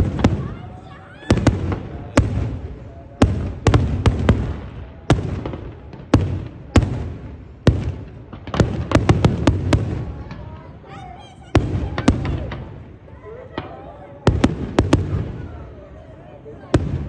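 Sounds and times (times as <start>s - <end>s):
fireworks bangs echoing: 0.0s - 16.0s, 16.6s - 17.0s.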